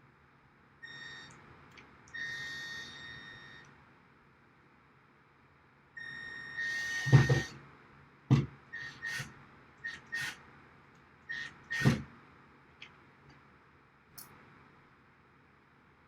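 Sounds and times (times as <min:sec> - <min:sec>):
cordless drill whining: 0:06.2 - 0:07.6, 0:08.8 - 0:10.4, 0:11.3 - 0:12.0
drill bit grinding into wood: 0:06.6 - 0:07.6, 0:08.8 - 0:09.3, 0:09.9 - 0:10.4, 0:11.3 - 0:12.0.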